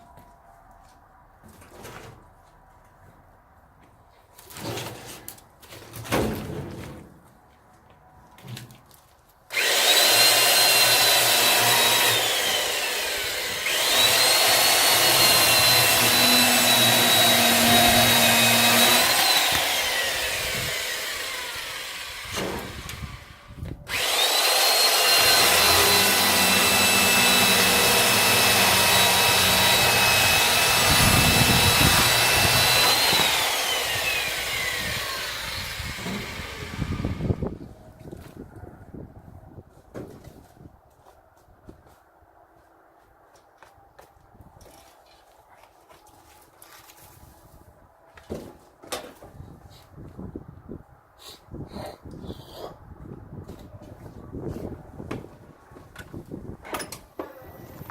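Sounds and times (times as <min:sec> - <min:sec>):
electric saw cutting wood: 0:09.5 - 0:37.6.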